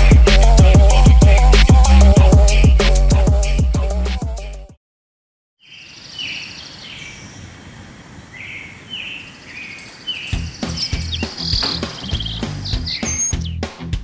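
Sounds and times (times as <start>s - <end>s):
bird chirping: 5.6s - 13.7s
sharp knocks and thuds: 10.6s - 12.7s.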